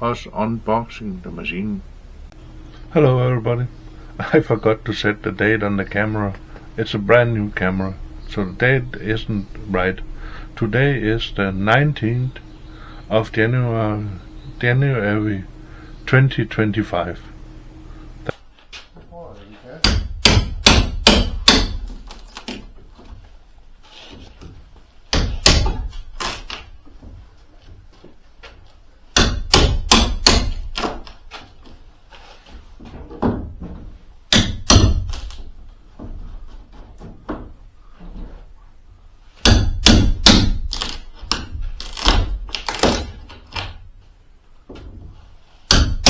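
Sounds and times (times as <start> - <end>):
hammer striking wooden crate: 19.8 - 22.0, 25.1 - 26.0, 29.1 - 31.1, 33.0 - 36.2, 39.4 - 43.2, 45.6 - 46.0.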